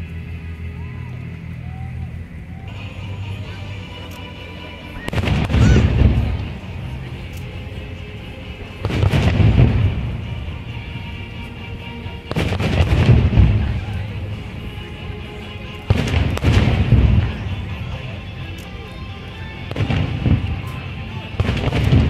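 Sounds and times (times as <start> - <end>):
fireworks booming: 5.0 - 7.2, 8.7 - 11.4, 12.0 - 14.4, 15.8 - 18.1, 19.6 - 22.0.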